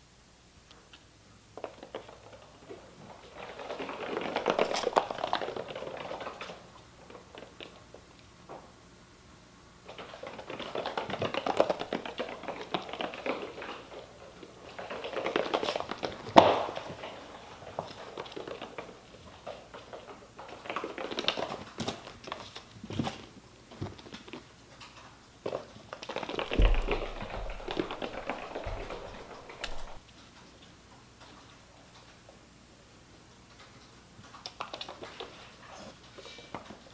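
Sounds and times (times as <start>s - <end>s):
kittens' paws pattering and scrabbling: 0.8s - 8.7s, 9.8s - 32.4s, 33.4s - 36.9s
low thump: 26.4s - 30.0s.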